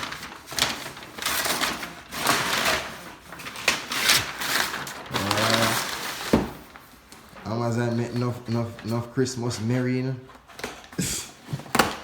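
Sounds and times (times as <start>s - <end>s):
wrapping paper tearing: 0.0s - 9.0s.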